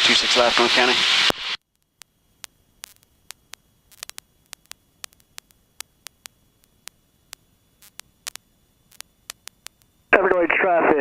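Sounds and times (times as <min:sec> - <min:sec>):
radio static clicks and crackles: 0:00.0 - 0:11.0.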